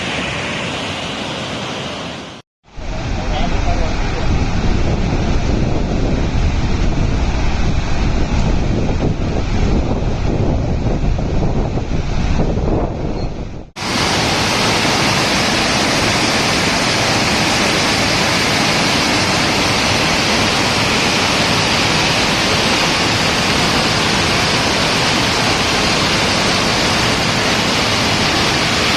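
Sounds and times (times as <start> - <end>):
rushing floodwater: 0.0 - 10.5, 13.8 - 28.9.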